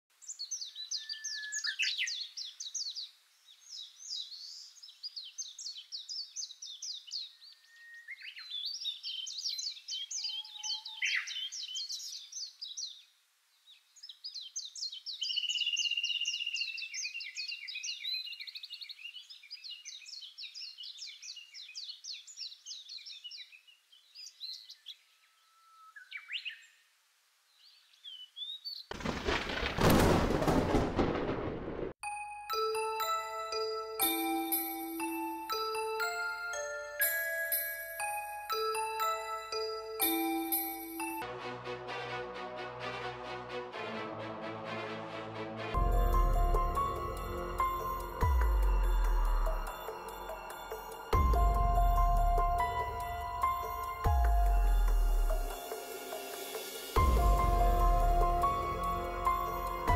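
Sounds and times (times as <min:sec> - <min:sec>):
songbirds singing in trills: 0:00.1 - 0:28.9.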